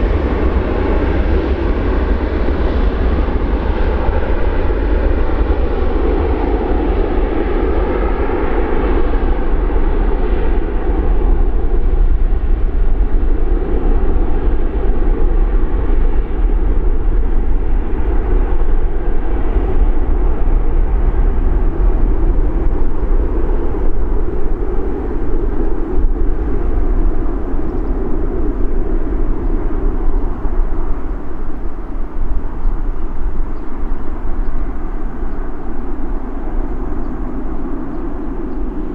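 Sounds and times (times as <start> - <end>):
jet engines at takeoff: 0.0 - 38.9.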